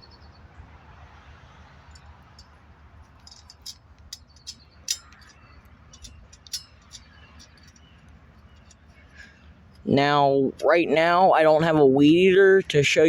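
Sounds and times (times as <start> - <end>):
metal bolts clicking and rattling: 1.8 - 10.0.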